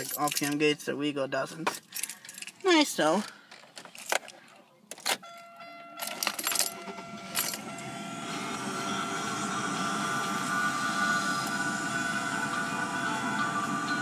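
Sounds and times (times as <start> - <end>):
keys clicking in ignition: 0.0 - 0.6, 1.7 - 7.7
steady high tone: 5.3 - 14.0
car engine starting and running: 6.1 - 14.0.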